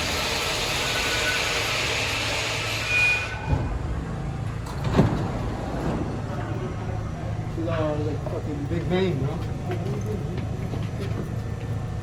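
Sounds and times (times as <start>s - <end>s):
subway train wheels rushing: 0.0s - 12.0s
faint wheel squeal: 0.6s - 3.7s
steady low hum: 3.5s - 12.0s.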